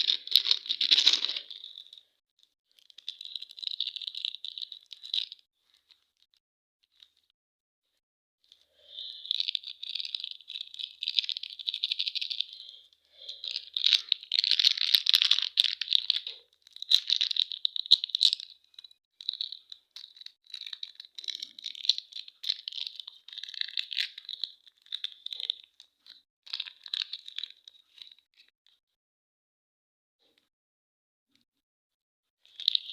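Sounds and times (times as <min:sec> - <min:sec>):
plastic wrappers crinkling and tearing: 0:00.0 - 0:02.0, 0:02.9 - 0:05.3, 0:13.4 - 0:18.5, 0:19.4 - 0:27.5.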